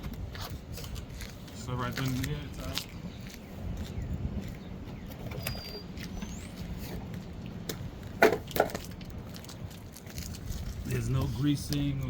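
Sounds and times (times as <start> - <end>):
faint bird chirp: 3.1 - 6.6
brake parts clattering: 8.0 - 10.4.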